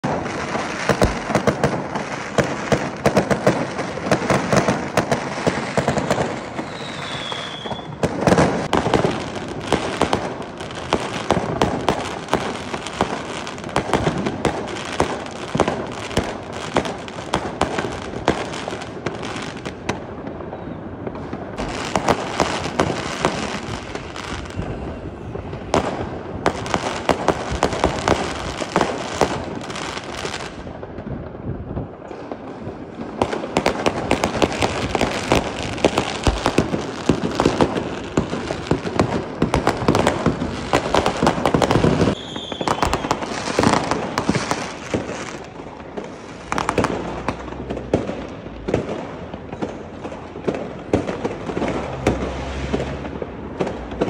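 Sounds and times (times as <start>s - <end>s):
fireworks bangs and crackles: 0.0s - 54.0s
firework high whistle: 5.4s - 8.6s, 20.3s - 26.0s, 40.7s - 46.7s.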